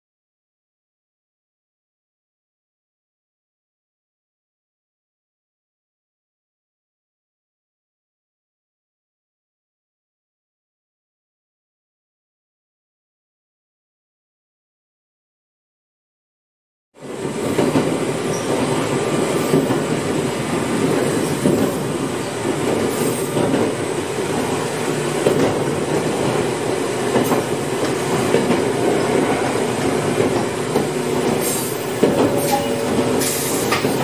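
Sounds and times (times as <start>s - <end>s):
train wheels rumbling on rail: 17.0s - 34.0s.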